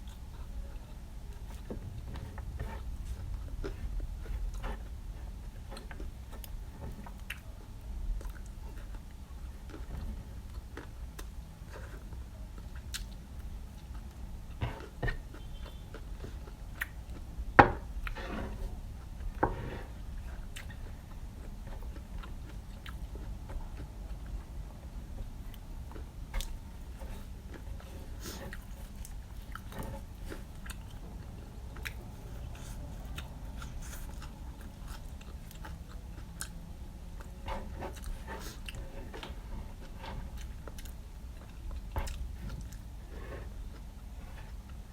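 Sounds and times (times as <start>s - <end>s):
low steady hum: 0.0s - 44.9s
crunchy chewing and biting: 25.5s - 44.9s.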